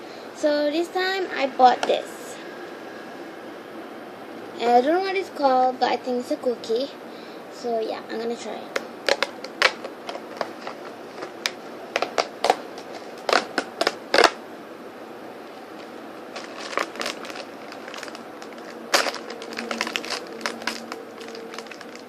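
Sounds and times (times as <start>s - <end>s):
packaging crackling: 9.0s - 14.4s, 15.7s - 22.0s.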